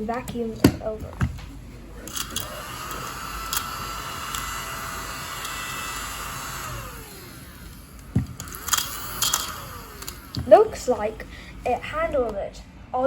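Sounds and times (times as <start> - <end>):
motor spinning down: 2.0 - 11.8
small vacuum motor whine: 2.0 - 11.8
knocks: 8.1 - 8.5.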